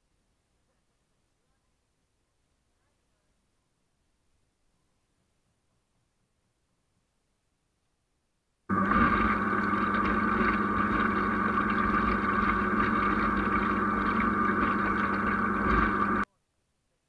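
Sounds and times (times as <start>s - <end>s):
boat motor running: 8.7s - 16.2s.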